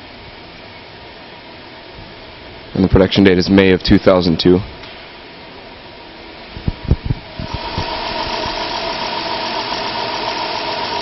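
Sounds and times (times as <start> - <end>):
high engine whine: 4.3 - 11.0
car engine cranking and idling: 7.4 - 11.0.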